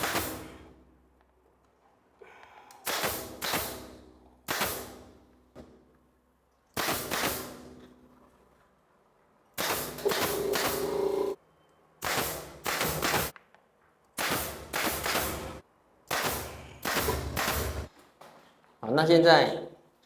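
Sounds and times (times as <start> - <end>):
nail gun firing into wood: 0.0 - 0.6, 2.8 - 5.8, 6.8 - 7.8, 9.6 - 11.0, 12.0 - 13.4, 14.2 - 17.9.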